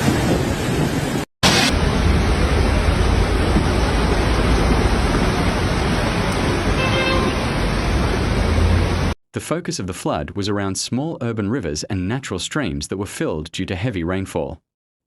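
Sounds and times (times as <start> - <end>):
deep rumble: 0.0 - 6.8
flood water rushing: 0.0 - 9.2.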